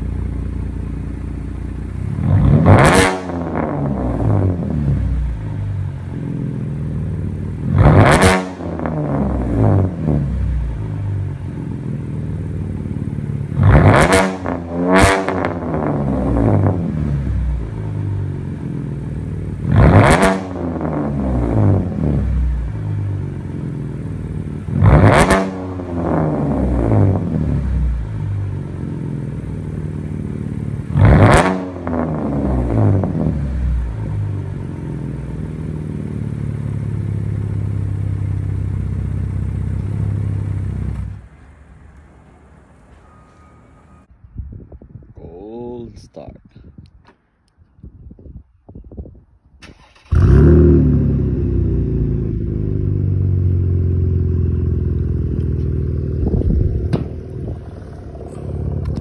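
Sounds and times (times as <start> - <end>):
car engine idling and revving: 0.0 - 44.1, 49.6 - 59.0.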